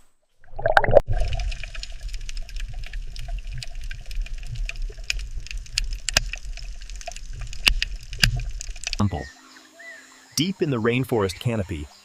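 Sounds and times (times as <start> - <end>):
water trickling: 0.4 - 12.0
water drips and splashes: 0.5 - 9.3.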